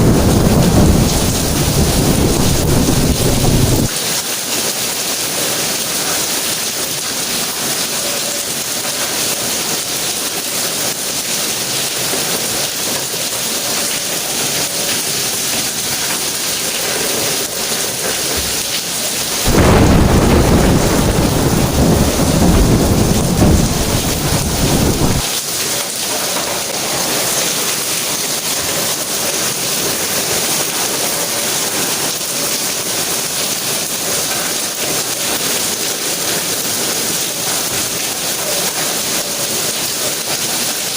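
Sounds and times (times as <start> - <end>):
deep thunder rumble: 0.0 - 3.9, 19.5 - 25.2
steady rain falling: 0.0 - 40.9.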